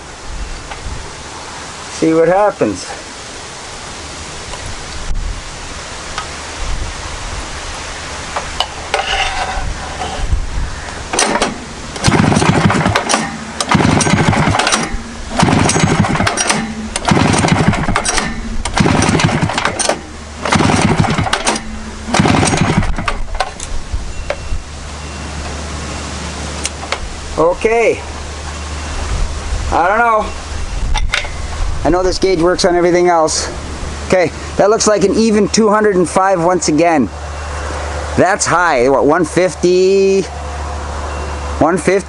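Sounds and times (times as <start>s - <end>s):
engine being cranked over: 11.1s - 23.7s.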